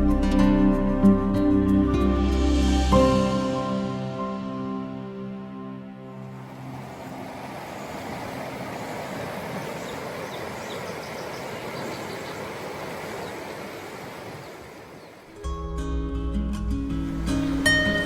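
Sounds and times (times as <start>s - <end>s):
flowing water rushing: 6.2s - 15.5s, 17.0s - 18.0s
faint bird chirps: 6.7s - 15.4s
acoustic guitar music: 15.4s - 18.0s.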